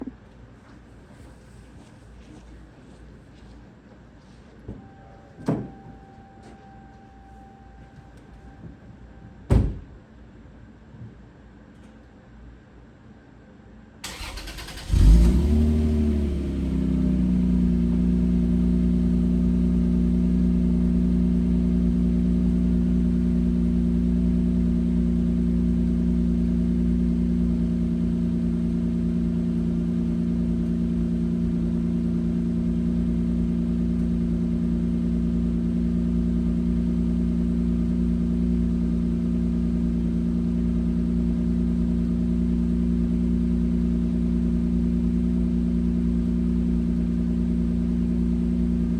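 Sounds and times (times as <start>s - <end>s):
car engine starting and idling: 14.0s - 48.9s.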